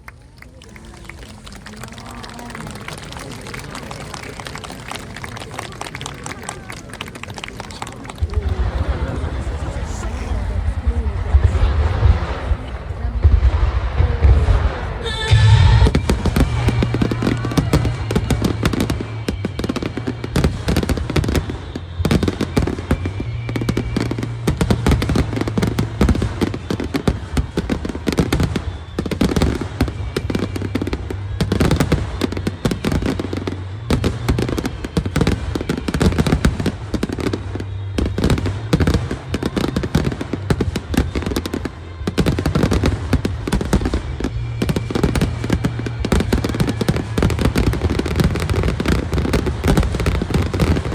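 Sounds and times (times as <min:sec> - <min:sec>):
fireworks bursting and crackling: 0:00.0 - 0:50.9.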